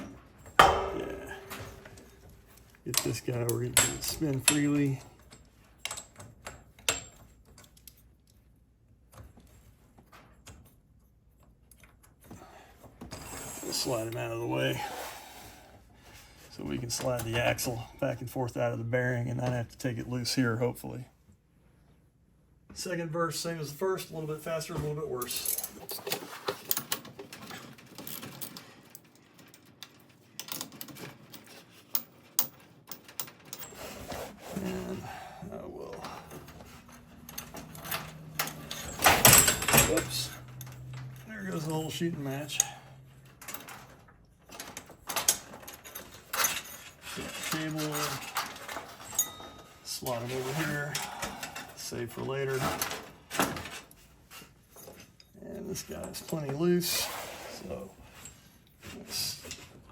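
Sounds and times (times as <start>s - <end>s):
metallic clicks of door hardware: 37.0s - 41.2s.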